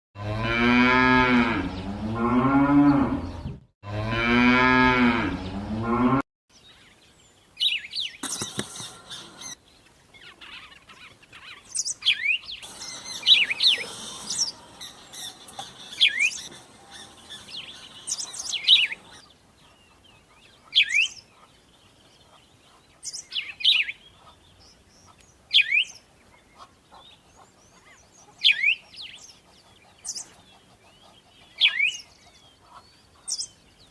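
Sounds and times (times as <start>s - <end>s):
cow mooing: 0.2s - 6.2s
bird chirps: 6.6s - 33.9s
faint hiss: 12.6s - 19.7s.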